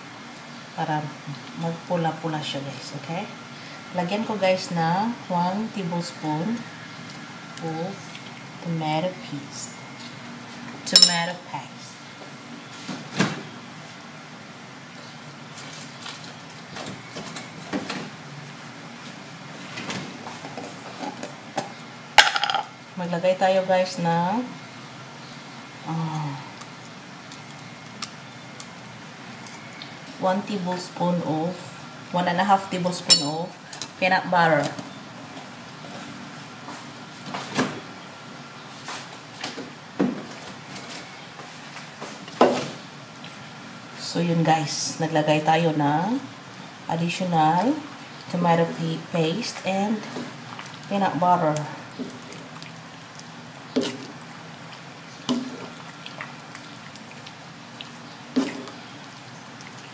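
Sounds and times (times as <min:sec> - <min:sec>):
kitchen items knocking: 0:22.2 - 0:22.7.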